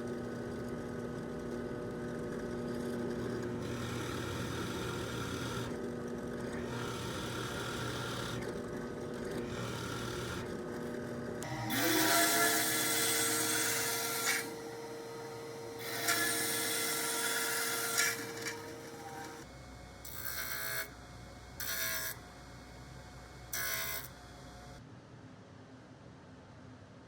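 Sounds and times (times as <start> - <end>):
power tool cutting wood: 3.3 - 5.8, 6.4 - 8.6, 9.2 - 10.5, 11.4 - 19.5, 20.1 - 21.0, 21.6 - 22.2, 23.6 - 24.2
wood-working noise bursts: 11.4 - 19.4.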